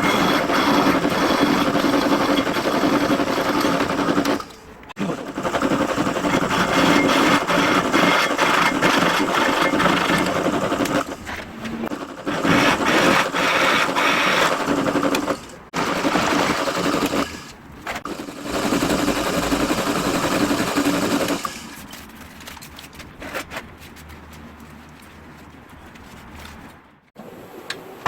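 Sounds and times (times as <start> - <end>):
clicks and handling: 21.7 - 26.8.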